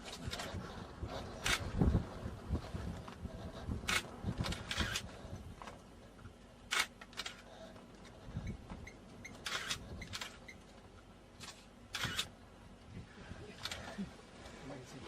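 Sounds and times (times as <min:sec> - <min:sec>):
camera shutter clicks: 0:03.9 - 0:05.1, 0:06.7 - 0:07.4, 0:09.4 - 0:10.4, 0:11.4 - 0:12.3.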